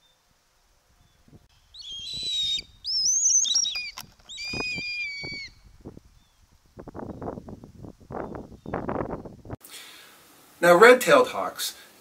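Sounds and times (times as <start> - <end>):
high-pitched bird calls: 1.0 - 6.4.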